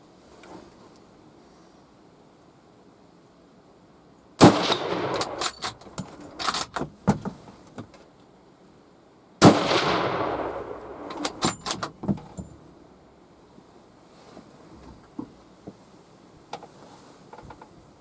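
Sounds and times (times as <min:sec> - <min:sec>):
gunshots with echo: 0:04.4 - 0:05.6, 0:09.4 - 0:11.4.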